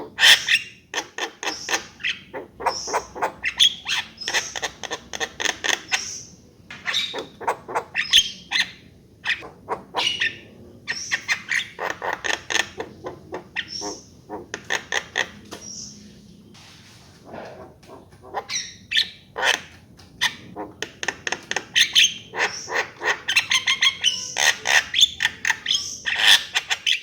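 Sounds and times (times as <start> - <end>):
myna calling: 6.9 - 16.0, 17.2 - 27.0.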